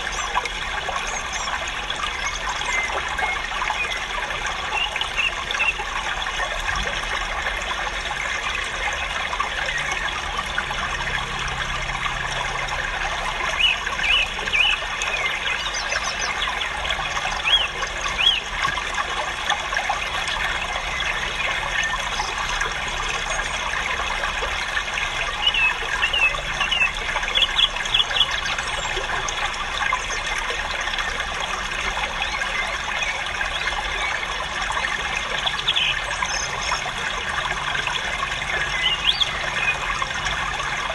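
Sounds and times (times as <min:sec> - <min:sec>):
small birds chirping and twittering: 0:00.0 - 0:05.9, 0:13.4 - 0:18.8, 0:25.2 - 0:37.2, 0:38.2 - 0:40.2.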